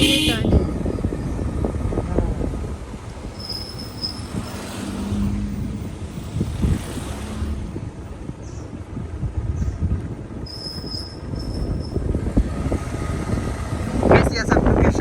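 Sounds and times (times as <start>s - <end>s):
motorcycle engine hum: 0.0s - 15.0s
wind rumbling on microphone: 0.0s - 15.0s
high-pitched squeal: 3.3s - 4.7s.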